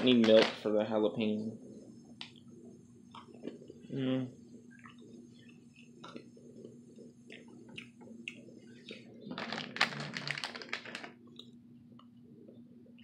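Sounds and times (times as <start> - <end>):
faint steady hum: 0.0 - 13.0
person chewing candy: 4.6 - 11.6.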